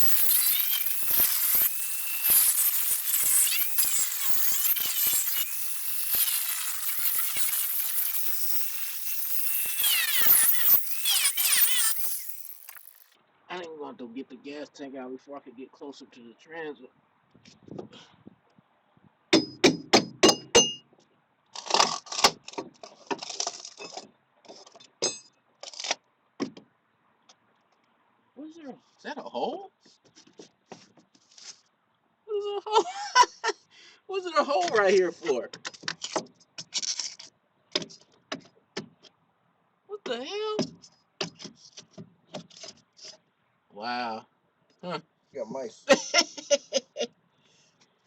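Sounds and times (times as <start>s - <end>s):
power grinder whining: 0.0s - 13.1s.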